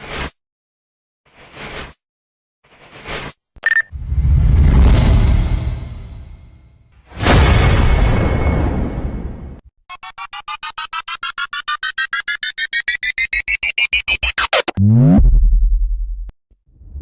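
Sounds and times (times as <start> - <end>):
electronic sweep: 9.9 - 15.7
rising pulsing electronic tones: 9.9 - 16.0.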